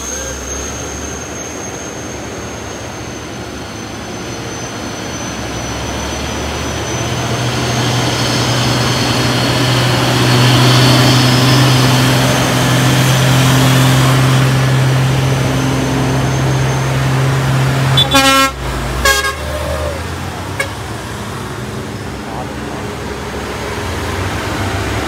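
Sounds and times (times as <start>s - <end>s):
heavy truck engine droning: 0.0s - 25.0s
truck horn toots: 17.8s - 20.8s.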